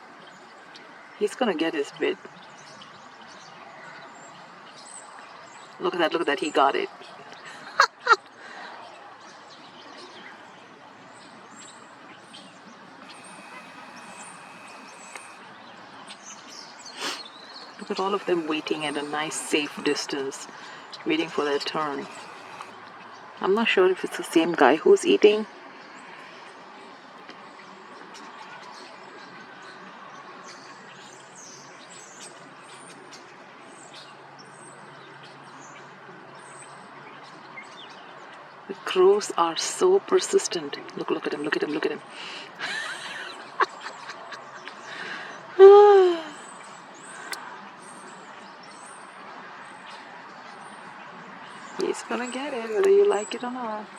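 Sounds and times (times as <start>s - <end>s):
outdoor background hiss: 0.0s - 53.9s
small birds chirping: 0.0s - 53.9s
background hiss: 11.1s - 25.1s.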